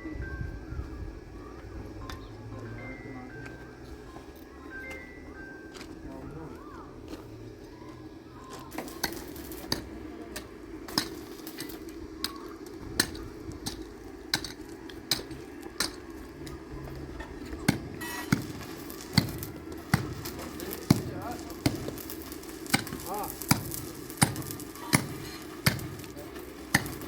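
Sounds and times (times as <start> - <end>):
hammer striking: 8.7 - 16.5, 17.5 - 27.0.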